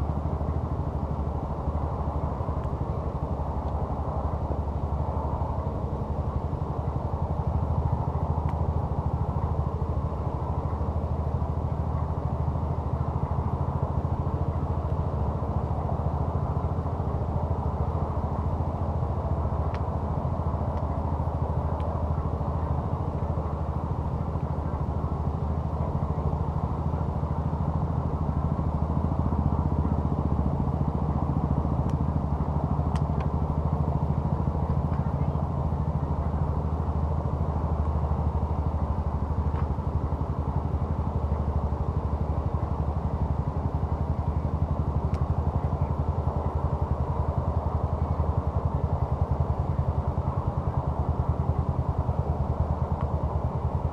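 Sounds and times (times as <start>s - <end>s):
engine droning steadily: 0.0s - 53.9s.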